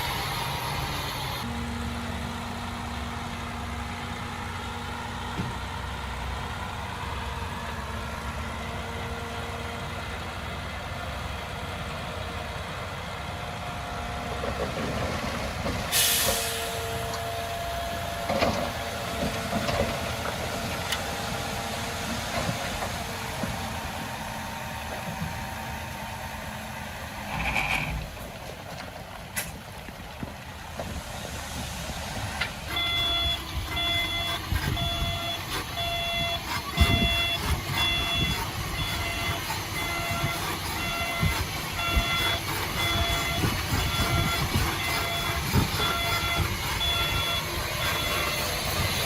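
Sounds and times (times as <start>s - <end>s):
heavy machinery engine running: 0.0s - 49.0s
hiss burst: 15.9s - 16.9s.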